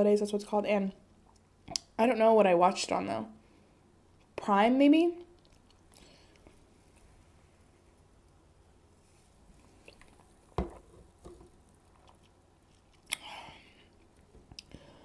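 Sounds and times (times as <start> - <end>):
person chewing with wet clicks: 1.2 - 2.0, 5.3 - 7.0, 9.7 - 10.3, 11.8 - 13.3.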